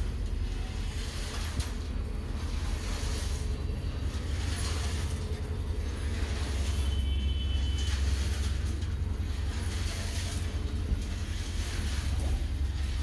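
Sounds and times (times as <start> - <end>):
faint high squeal: 6.5 - 8.6.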